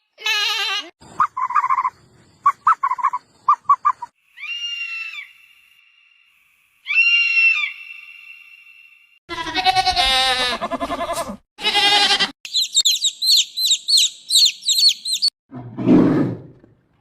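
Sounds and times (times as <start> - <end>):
long high-pitched animal calls: 2.5 - 5.8, 6.8 - 15.3
short animal chirps: 12.5 - 15.3.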